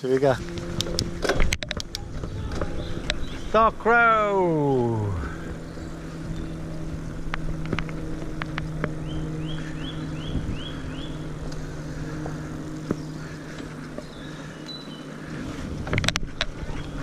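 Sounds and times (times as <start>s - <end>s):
low mechanical hum: 0.0s - 17.0s
sharp clicks: 0.2s - 3.3s.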